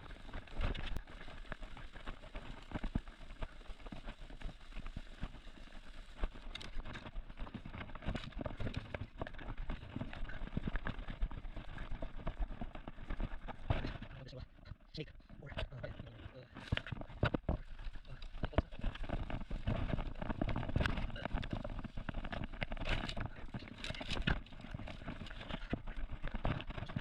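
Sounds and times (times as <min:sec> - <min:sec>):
twigs snapping and rustling: 0:16.6 - 0:27.0.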